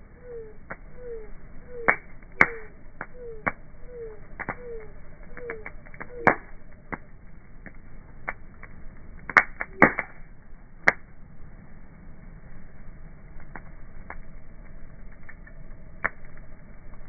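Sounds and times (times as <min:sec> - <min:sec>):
wood fire crackling: 0:00.0 - 0:17.0
sharp pops: 0:01.8 - 0:03.6, 0:05.4 - 0:07.0, 0:09.3 - 0:10.2.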